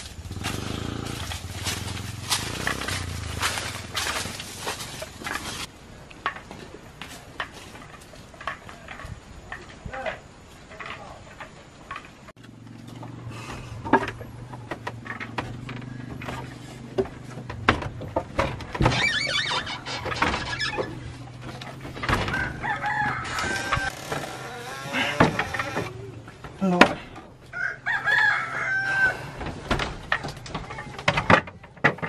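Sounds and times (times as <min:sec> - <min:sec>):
knocks and thumps: 0:12.9 - 0:24.4, 0:29.4 - 0:32.0
rooster crowing: 0:22.2 - 0:24.0, 0:27.5 - 0:29.4.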